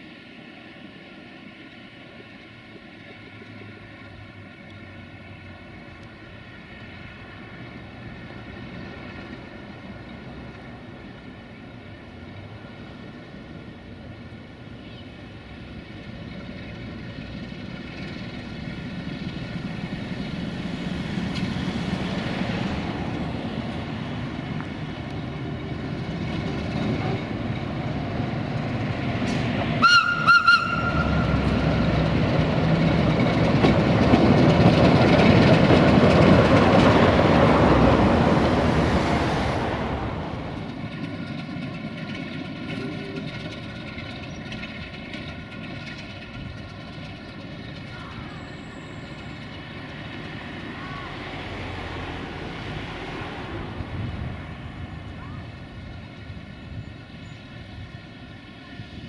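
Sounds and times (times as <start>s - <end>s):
train approaching: 0.0s - 59.0s
train horn blasts: 29.8s - 31.6s.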